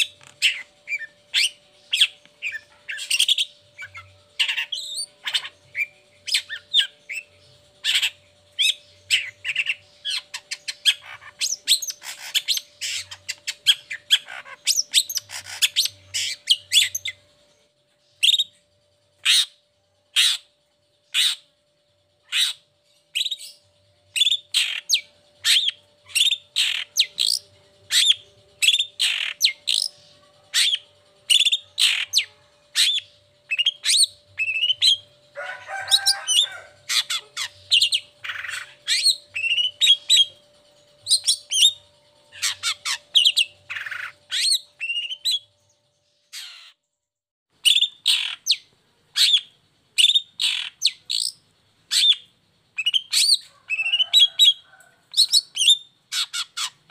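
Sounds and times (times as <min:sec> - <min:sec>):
shrike singing sharp chirps: 0:22.2 - 0:45.5.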